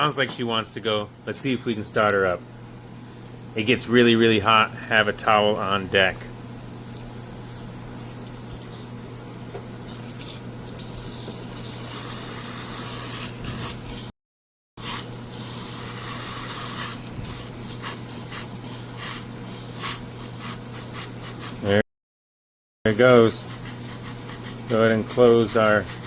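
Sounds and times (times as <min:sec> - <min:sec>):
steam hissing: 0:14.8 - 0:21.0.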